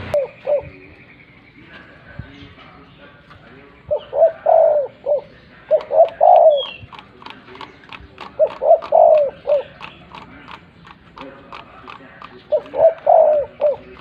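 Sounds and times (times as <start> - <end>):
dove cooing: 0.0 - 0.9, 3.9 - 10.6, 11.5 - 14.0.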